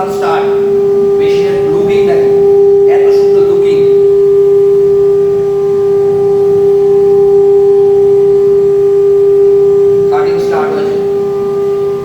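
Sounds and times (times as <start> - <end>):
router spindle whine: 0.0 - 12.0.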